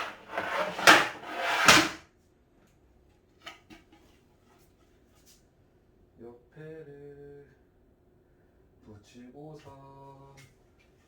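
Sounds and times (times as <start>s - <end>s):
panels scraping and sliding in box: 0.0s - 2.0s.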